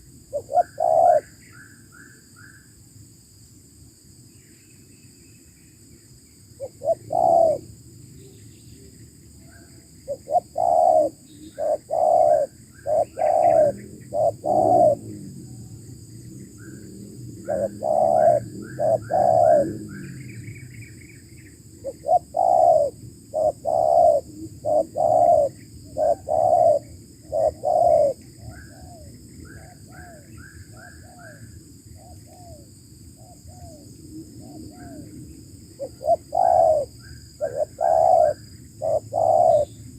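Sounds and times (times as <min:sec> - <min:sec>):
doves cooing: 0:00.0 - 0:01.3, 0:06.6 - 0:07.7, 0:10.1 - 0:15.6, 0:16.8 - 0:20.6, 0:21.8 - 0:39.8
small birds chirping: 0:04.3 - 0:15.2, 0:15.9 - 0:32.6, 0:33.2 - 0:39.9.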